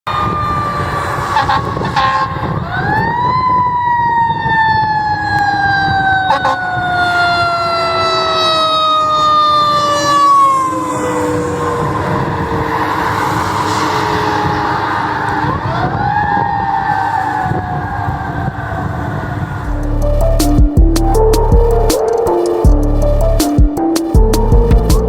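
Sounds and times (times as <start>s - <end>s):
fire engine siren: 0.0s - 24.6s
truck rumble: 0.1s - 3.4s, 5.9s - 25.0s.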